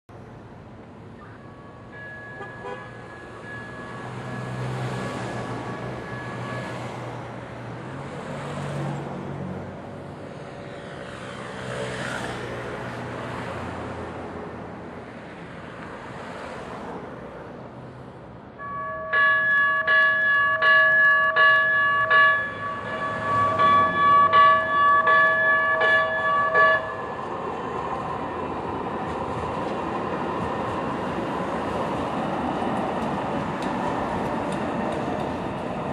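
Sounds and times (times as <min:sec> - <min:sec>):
train gong bell ringing: 0:01.9 - 0:04.0, 0:18.6 - 0:27.1
light rail train rumbling: 0:12.7 - 0:35.9.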